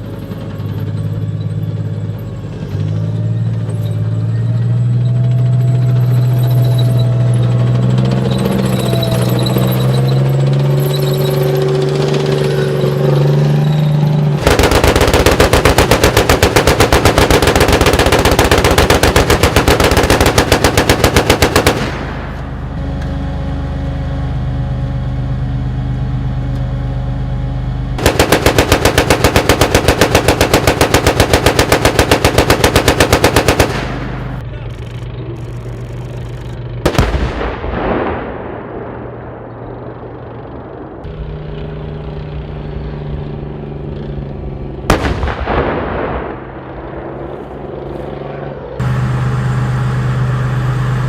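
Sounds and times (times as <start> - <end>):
tank engine running: 0.0 - 51.0
machine gun bursts: 14.4 - 22.6, 28.0 - 37.4.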